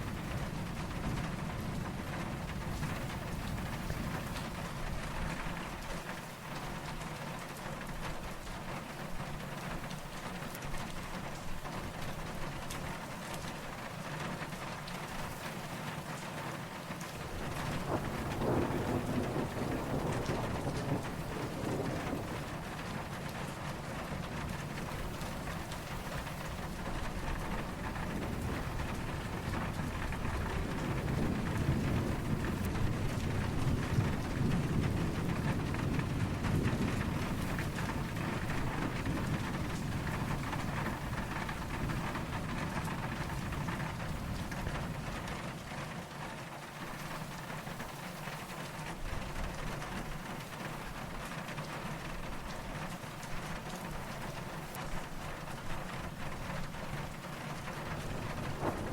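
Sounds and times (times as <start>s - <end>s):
distant thunder rumble: 0.0s - 6.2s, 17.0s - 45.9s, 48.6s - 58.9s
steady rain falling: 0.0s - 58.9s.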